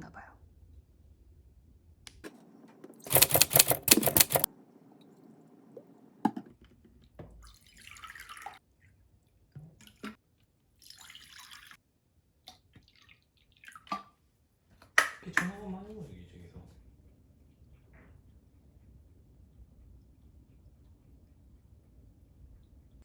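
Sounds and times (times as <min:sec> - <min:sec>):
water pouring into bowls: 0:07.5 - 0:08.6, 0:10.8 - 0:11.8.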